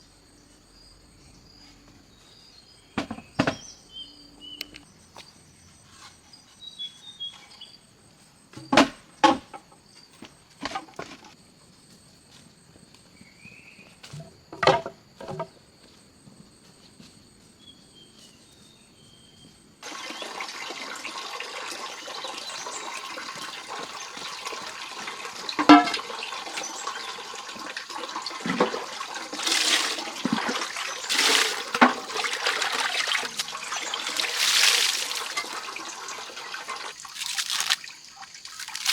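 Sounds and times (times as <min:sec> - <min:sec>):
insects droning: 0:00.0 - 0:06.1, 0:07.5 - 0:38.9
running splashing water: 0:22.4 - 0:25.4, 0:28.0 - 0:38.9.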